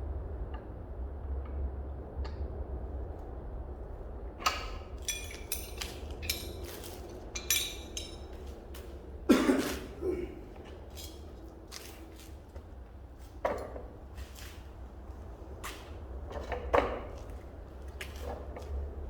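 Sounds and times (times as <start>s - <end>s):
steady low hum: 0.0s - 19.0s
hard objects clinking and knocking: 5.0s - 8.9s.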